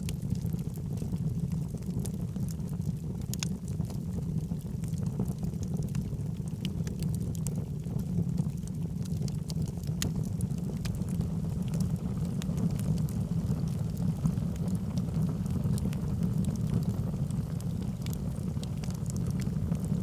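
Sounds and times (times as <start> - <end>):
fireplace logs crackling: 6.6 - 7.4, 8.5 - 13.8, 14.6 - 19.9.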